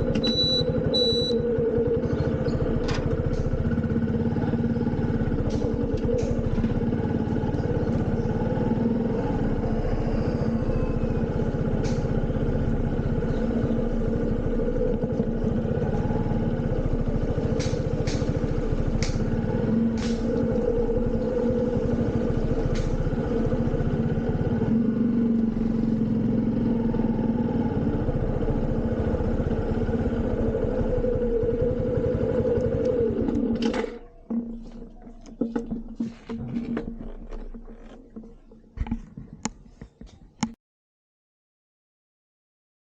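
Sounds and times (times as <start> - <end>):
motorcycle engine running: 0.0 - 40.6.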